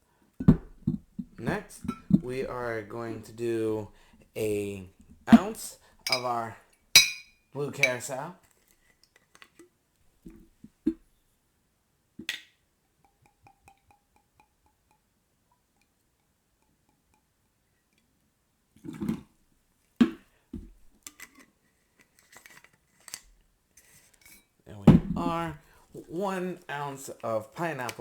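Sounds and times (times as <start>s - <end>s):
glass clinking: 1.7s - 2.6s, 5.3s - 8.1s, 13.0s - 15.1s
bottle thumping down: 24.8s - 25.5s.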